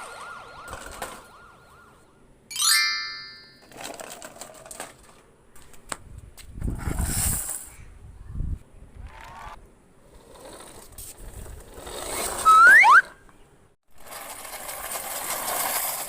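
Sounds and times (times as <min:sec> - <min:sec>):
plastic toys clicking and clattering: 0:00.7 - 0:01.2, 0:03.6 - 0:05.8, 0:14.0 - 0:16.0.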